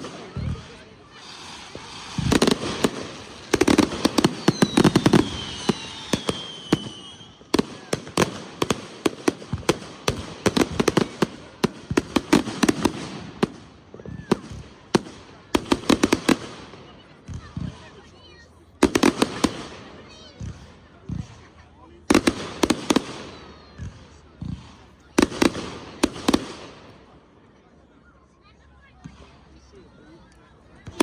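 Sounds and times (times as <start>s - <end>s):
fireworks bangs and cracks: 0.0s - 27.2s, 30.8s - 31.0s
falling firework whistle: 1.1s - 7.6s.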